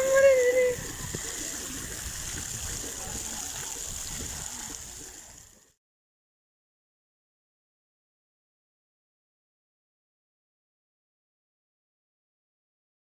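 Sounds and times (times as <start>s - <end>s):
water running and splashing: 0.0s - 5.8s.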